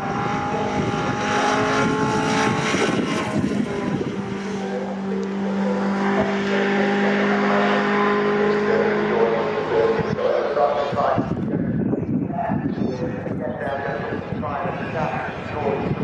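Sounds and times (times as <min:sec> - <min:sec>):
racing truck engines passing: 0:00.0 - 0:11.5.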